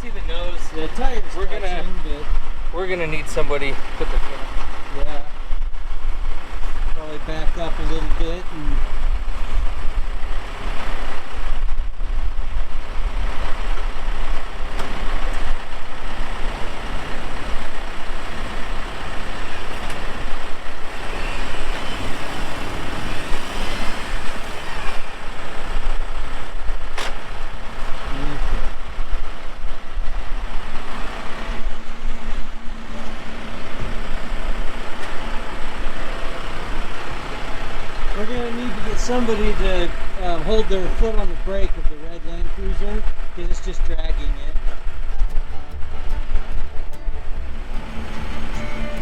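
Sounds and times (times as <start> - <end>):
vehicle engine running under load: 0.0 - 49.0
sharp click: 27.0 - 27.2.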